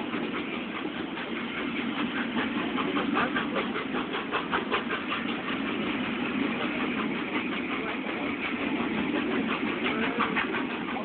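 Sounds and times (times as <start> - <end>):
train coaches rolling past: 0.0 - 11.0.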